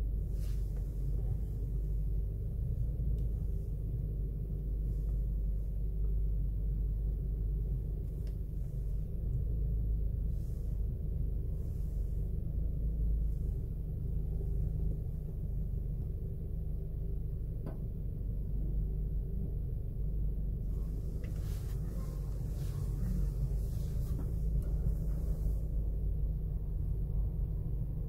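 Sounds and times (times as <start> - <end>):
car engine and road noise: 0.0 - 28.0
light tick: 3.1 - 3.3
faint hiss: 20.6 - 26.0.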